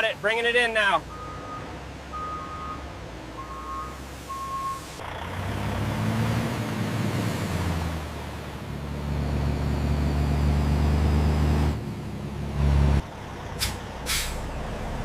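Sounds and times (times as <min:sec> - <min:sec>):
truck engine rumble: 0:00.0 - 0:15.0
truck reversing alarm beeping: 0:01.0 - 0:05.0.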